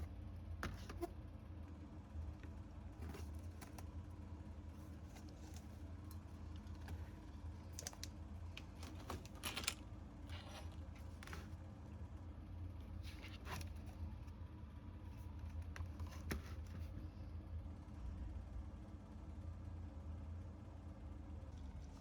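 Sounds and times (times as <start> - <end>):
steady low hum: 0.0 - 22.0
light clicks and short scrapes: 7.7 - 11.6.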